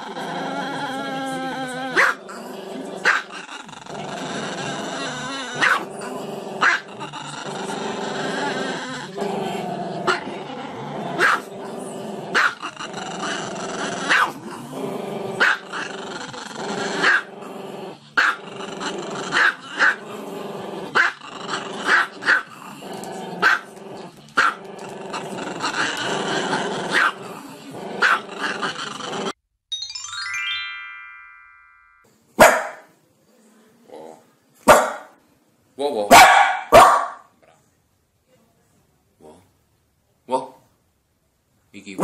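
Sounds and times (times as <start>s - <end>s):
dog yipping: 36.1s - 37.2s.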